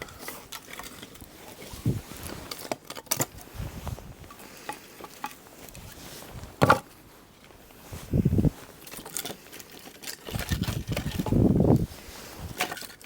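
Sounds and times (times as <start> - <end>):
firewood knocking and clattering: 6.5 - 6.9.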